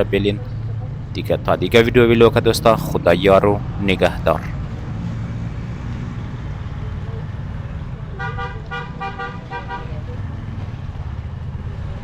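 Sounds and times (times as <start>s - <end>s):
vehicle and road rumble: 0.0s - 12.0s
vehicle horn honks: 8.2s - 10.0s.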